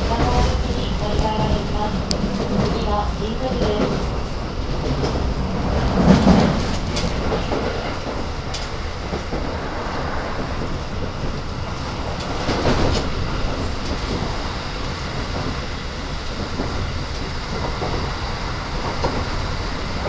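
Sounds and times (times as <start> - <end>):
wheels clicking over rail joints: 0.0 - 9.3
train interior rumble: 0.0 - 20.0.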